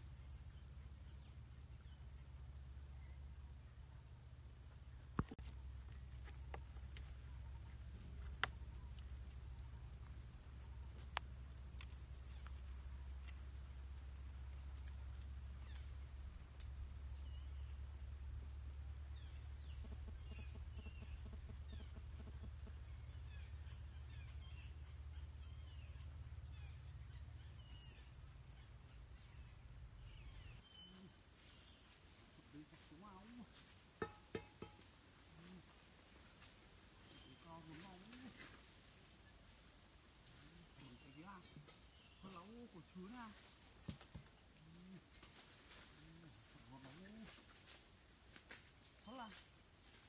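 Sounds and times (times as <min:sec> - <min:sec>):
low steady rumble: 0:00.0 - 0:48.3
steady low hum: 0:00.0 - 0:48.7
faint high bird chirps: 0:19.1 - 0:31.7.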